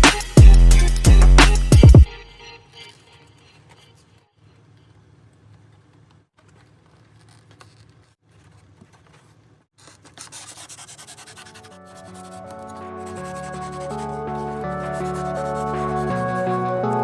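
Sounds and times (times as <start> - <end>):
music: 0.0 - 3.6, 11.7 - 17.0
hand rubbing and scraping styrofoam: 2.9 - 17.0.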